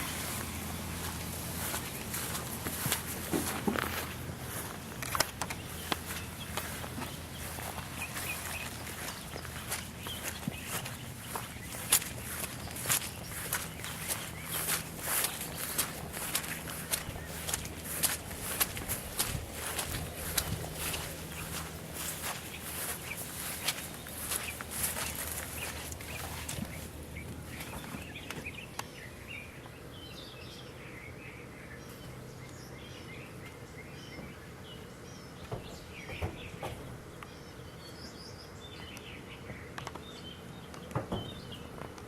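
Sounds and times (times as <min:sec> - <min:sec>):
low background rumble: 0:00.0 - 0:33.2
birds chirping: 0:00.0 - 0:42.0
footsteps outdoors: 0:00.0 - 0:42.0.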